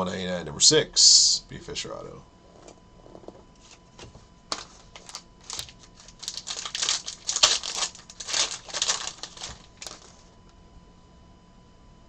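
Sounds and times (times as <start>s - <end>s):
wrapper crinkling and tearing: 4.5s - 10.3s.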